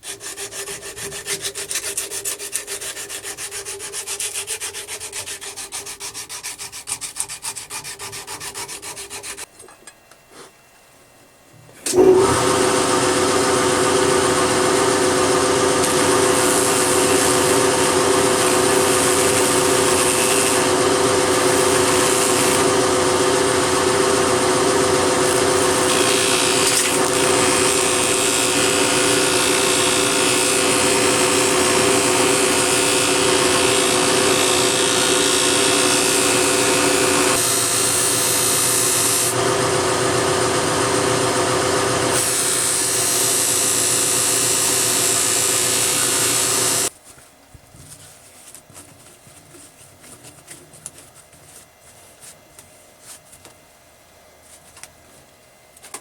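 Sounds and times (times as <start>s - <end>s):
scroll saw cutting metal: 0.0s - 9.5s, 13.8s - 46.9s.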